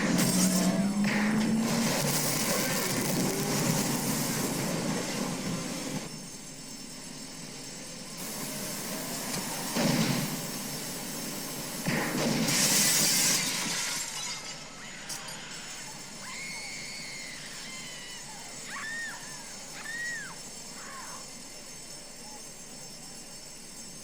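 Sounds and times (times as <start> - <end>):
heavy crashes: 9.3 - 14.8
glass shattering: 11.9 - 15.8.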